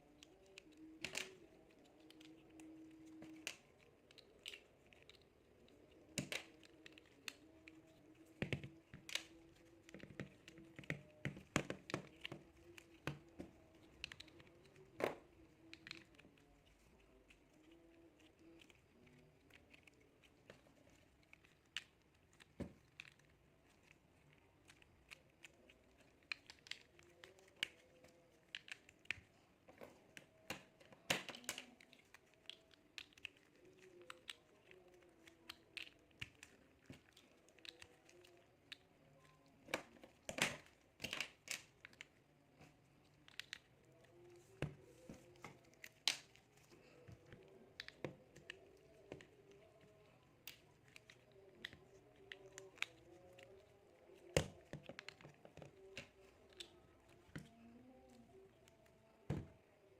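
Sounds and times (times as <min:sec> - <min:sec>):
plastic blocks snapping: 0:00.1 - 0:16.5, 0:24.6 - 0:43.8, 0:44.5 - 0:57.6
plastic blocks clicking together: 0:24.6 - 0:42.1.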